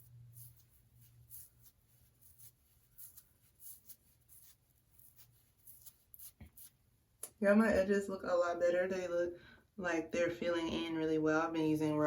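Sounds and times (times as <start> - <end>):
small brush scratching on hair: 0.0 - 6.8.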